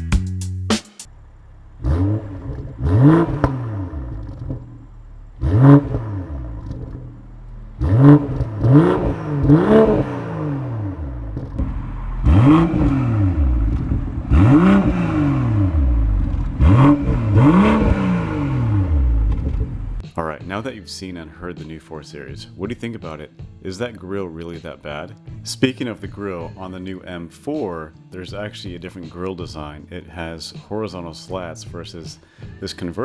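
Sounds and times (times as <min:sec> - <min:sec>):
car engine revving: 0:00.6 - 0:20.0.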